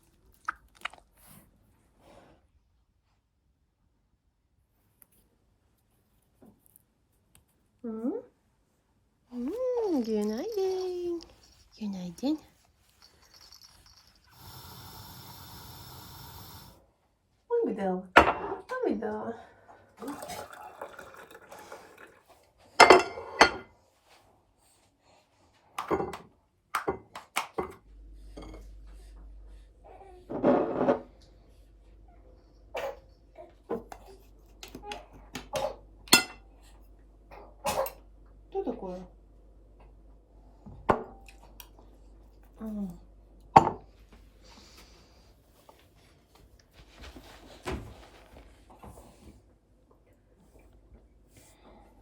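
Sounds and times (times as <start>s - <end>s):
dishes and utensils clattering: 22.8s - 23.7s, 36.1s - 36.4s.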